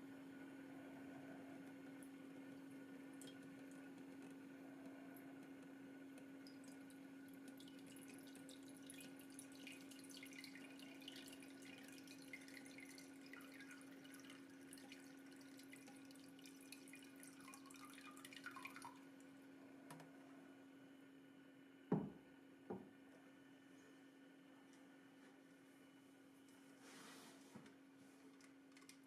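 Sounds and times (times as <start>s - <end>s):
water pump hum: 0.0s - 22.1s
water trickling and dripping: 2.0s - 4.4s, 6.2s - 19.4s.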